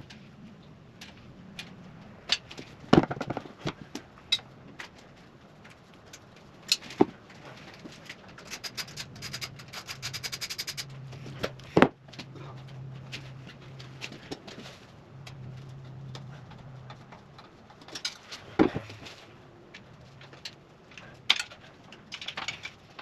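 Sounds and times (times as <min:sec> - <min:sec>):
ratchet clicks: 0:08.4 - 0:10.9
hand tools clicking on metal: 0:08.4 - 0:11.0.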